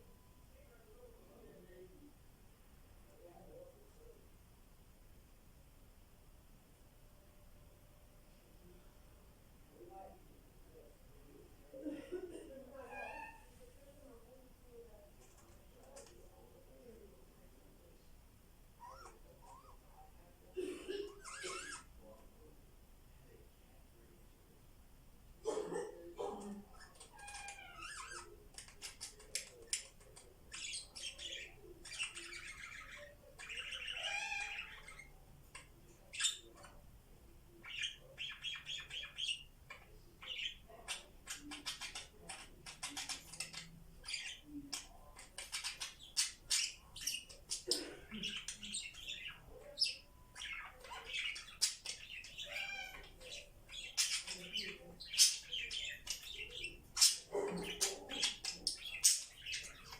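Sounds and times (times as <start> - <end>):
budgerigars chirping and warbling: 21.0 - 21.9, 26.7 - 36.8, 37.6 - 59.9.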